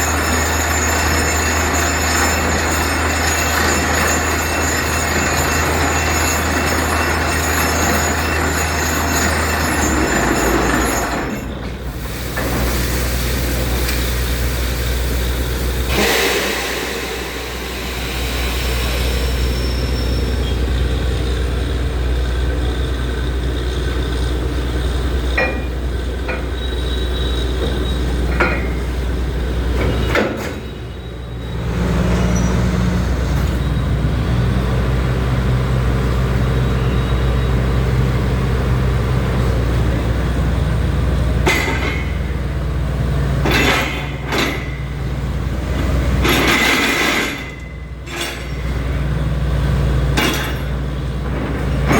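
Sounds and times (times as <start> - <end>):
drilling rig engine droning: 0.0 - 51.9
sharp metallic knocks: 41.4 - 42.4, 43.4 - 49.0, 50.1 - 51.9.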